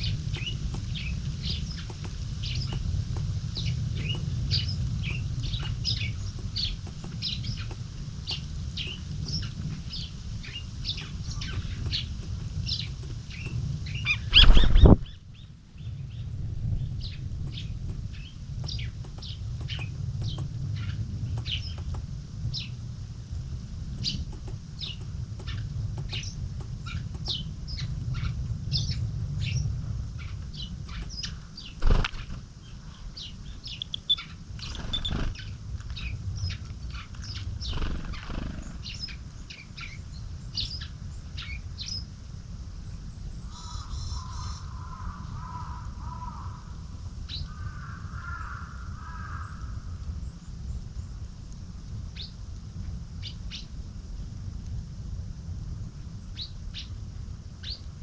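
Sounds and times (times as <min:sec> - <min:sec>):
wing flutters: 0:00.0 - 0:15.2, 0:30.9 - 0:32.6, 0:34.6 - 0:35.6, 0:37.1 - 0:39.2
low rumble: 0:00.0 - 0:40.8
songbirds chirping: 0:00.0 - 0:54.9, 0:55.7 - 0:58.0.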